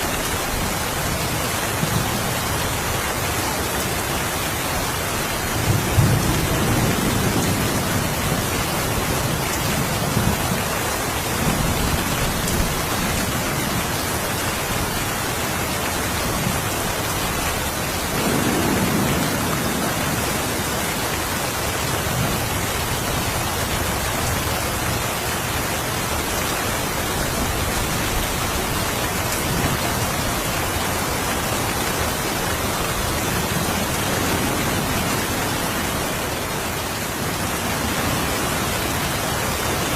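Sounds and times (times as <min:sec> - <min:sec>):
steady rain falling: 0:00.0 - 0:39.9
distant thunder rumbling: 0:18.0 - 0:20.8.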